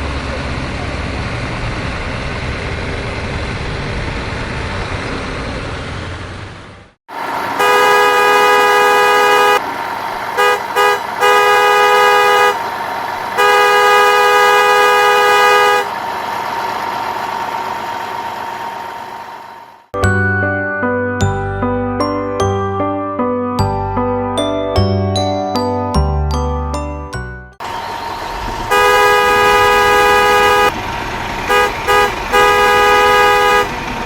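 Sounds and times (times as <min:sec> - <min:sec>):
vehicle engine rumble: 0:00.0 - 0:19.9, 0:26.0 - 0:34.0
truck horn honking: 0:07.2 - 0:16.0, 0:28.3 - 0:30.8, 0:31.4 - 0:34.0.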